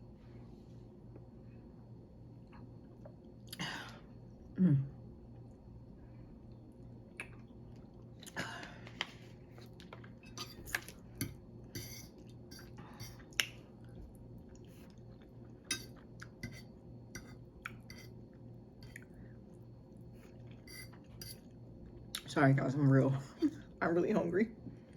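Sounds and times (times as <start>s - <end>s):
low steady hum: 0.0s - 24.9s
close chewing with mouth clicks: 17.5s - 17.9s.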